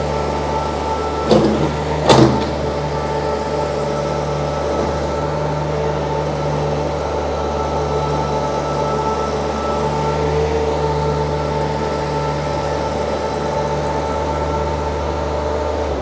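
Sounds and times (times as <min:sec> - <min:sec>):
diesel engine running under load: 0:00.0 - 0:16.0
hydraulics working: 0:00.0 - 0:16.0
loud metal clanks: 0:01.3 - 0:02.8.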